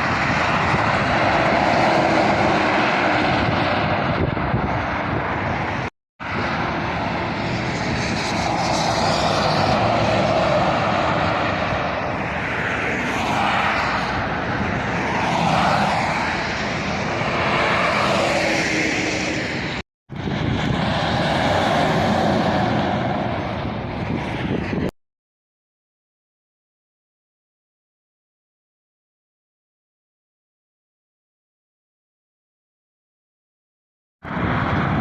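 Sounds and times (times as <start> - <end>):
road traffic passing: 0.0 - 24.9, 34.2 - 35.0.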